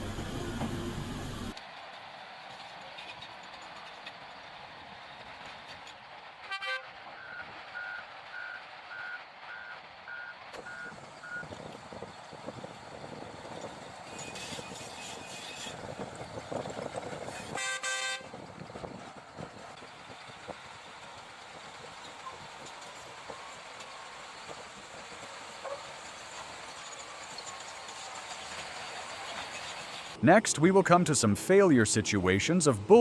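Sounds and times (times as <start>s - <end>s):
machinery noise: 0.0s - 1.6s, 23.0s - 33.0s
vehicle horn: 6.4s - 6.9s, 17.3s - 18.4s.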